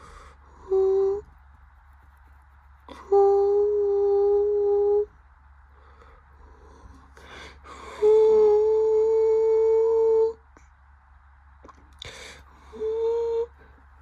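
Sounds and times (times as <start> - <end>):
breath: 0.0 - 0.6, 5.7 - 8.0, 12.0 - 12.8
person humming steady note: 0.0 - 1.3, 2.9 - 5.1, 6.4 - 10.4, 12.6 - 13.6.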